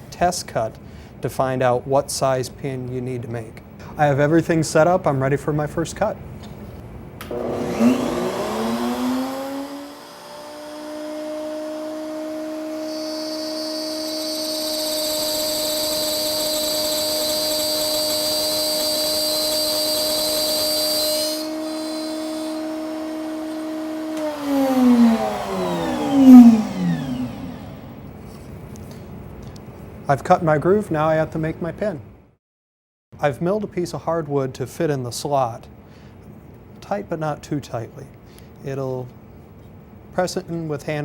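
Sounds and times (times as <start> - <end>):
router bit cutting wood hiss: 7.2 - 28.0
router whining: 7.2 - 28.2.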